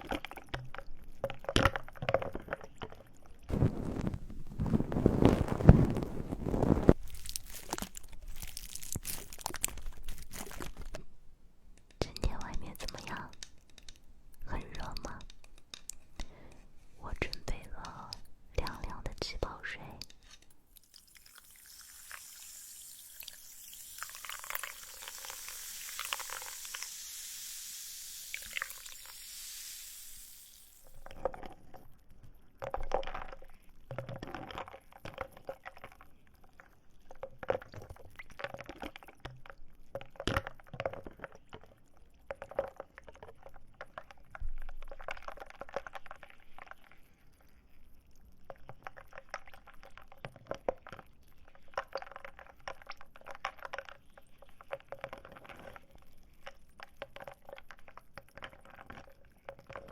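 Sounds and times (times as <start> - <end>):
dried plant material rustling: 3.5 - 11.1.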